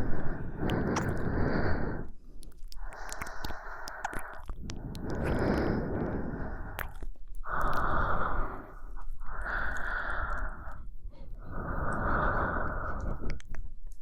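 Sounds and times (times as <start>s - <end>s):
woman breathing into microphone: 0.0s - 2.2s, 2.8s - 13.5s
faint clicks: 0.2s - 1.3s, 2.3s - 8.4s, 11.8s - 14.0s.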